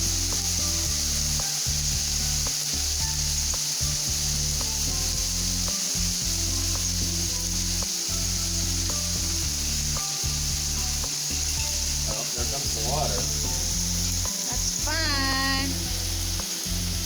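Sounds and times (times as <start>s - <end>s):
hail falling: 0.0s - 17.0s
hailstones ticking: 0.0s - 17.0s.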